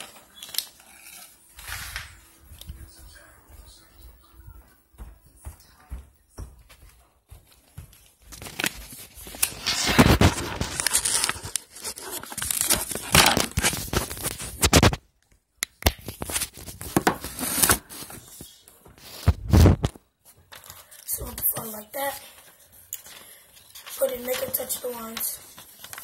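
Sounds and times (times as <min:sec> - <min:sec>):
paper crinkling and rustling: 0:00.0 - 0:02.8, 0:07.9 - 0:15.0, 0:16.0 - 0:26.0.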